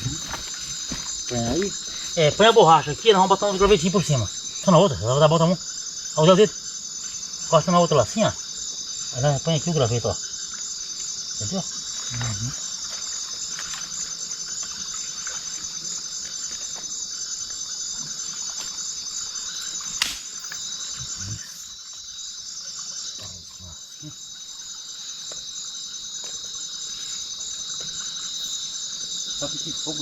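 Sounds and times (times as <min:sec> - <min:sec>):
crickets and insects chirring: 0:00.0 - 0:30.0
sharp click: 0:20.0 - 0:20.4.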